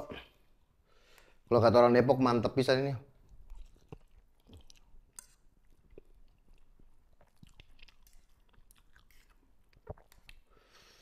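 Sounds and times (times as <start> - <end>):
chewing crunchy noodles: 3.2 - 10.6.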